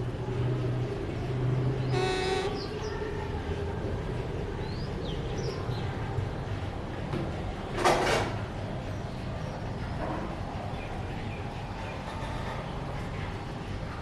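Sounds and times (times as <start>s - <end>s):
low background rumble: 0.0s - 7.7s.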